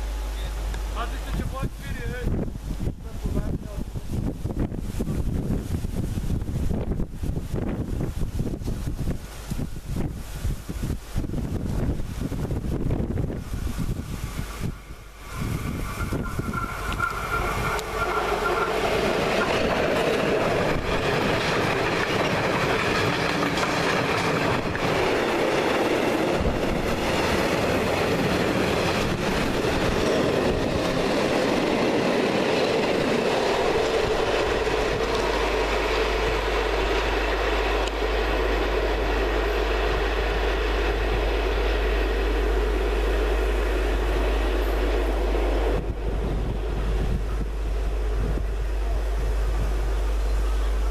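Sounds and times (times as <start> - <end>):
freight wagons rumbling past: 14.4 - 50.9
wheels clattering over rail joints: 15.2 - 38.1.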